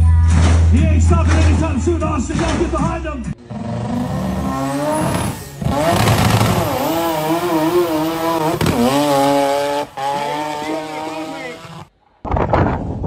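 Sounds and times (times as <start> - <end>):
off-road vehicle engine revving: 3.3 - 11.9.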